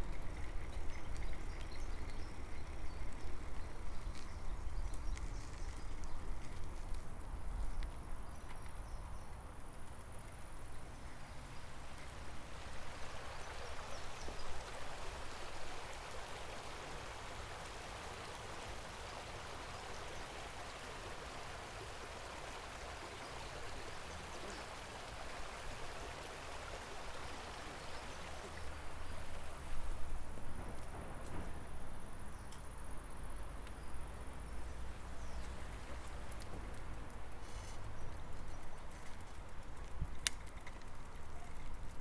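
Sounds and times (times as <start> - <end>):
stream water rushing: 11.8 - 30.2.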